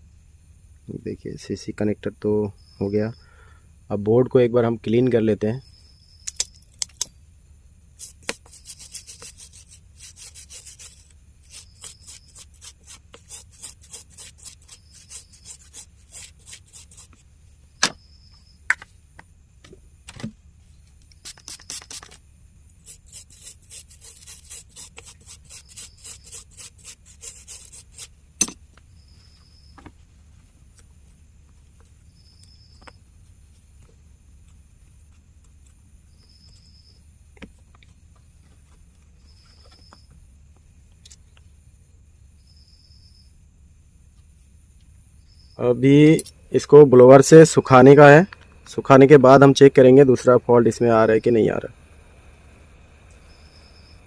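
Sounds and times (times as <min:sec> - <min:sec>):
sharp clicks: 0:06.2 - 0:07.2
brush scrubbing circuit board: 0:08.0 - 0:17.2, 0:21.2 - 0:22.2, 0:22.8 - 0:28.1.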